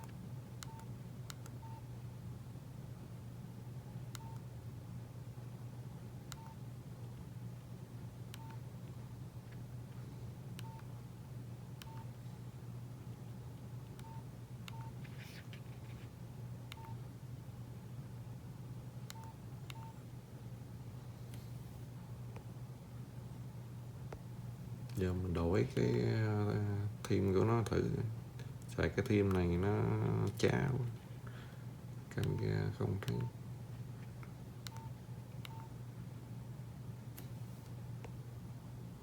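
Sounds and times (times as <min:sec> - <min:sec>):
keypad beeps with clicks: 0:00.0 - 0:01.8, 0:04.1 - 0:04.5, 0:06.3 - 0:06.6, 0:08.3 - 0:08.6, 0:10.6 - 0:10.9, 0:11.8 - 0:12.1, 0:14.0 - 0:15.0, 0:16.7 - 0:17.0, 0:19.1 - 0:20.0, 0:34.6 - 0:35.7
steady low hum: 0:00.0 - 0:39.0.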